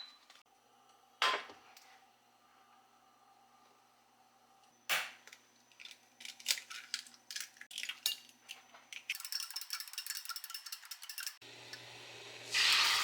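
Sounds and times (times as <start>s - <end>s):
utensils clinking against dishes: 6.2s - 11.8s.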